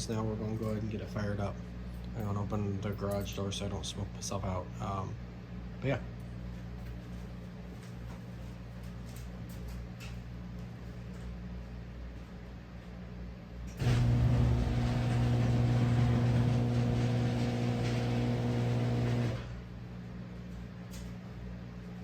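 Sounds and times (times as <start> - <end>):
faint background hum: 0.0 - 22.0
garage door motor humming: 13.7 - 19.8.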